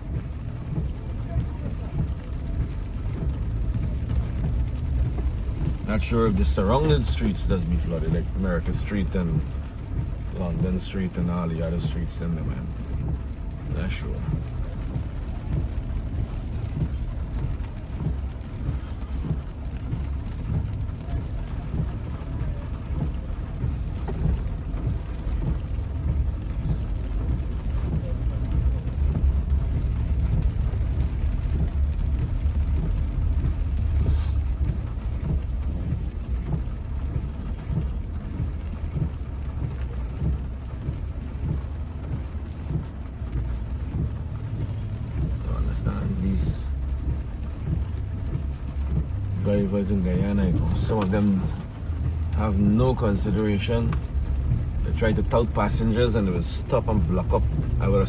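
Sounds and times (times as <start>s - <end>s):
car driving rumble from inside: 0.0s - 58.0s
faint light ticks: 0.1s - 58.0s.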